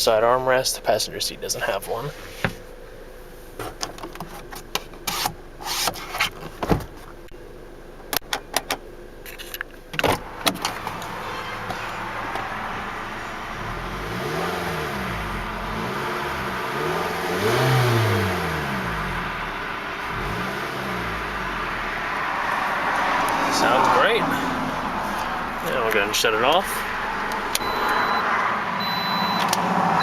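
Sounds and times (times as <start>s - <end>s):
car engine revving: 10.2s - 30.0s.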